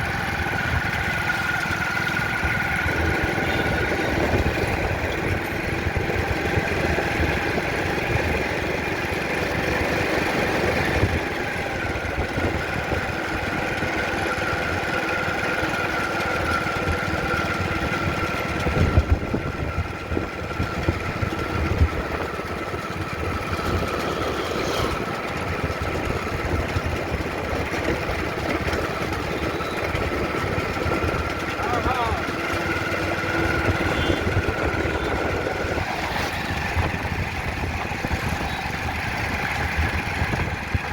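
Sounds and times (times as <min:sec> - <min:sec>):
engine running with high whine: 0:00.0 - 0:40.9.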